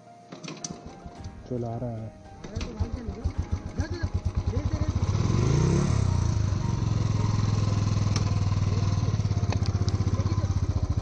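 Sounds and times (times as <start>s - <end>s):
motorcycle engine thumping: 2.4s - 11.0s.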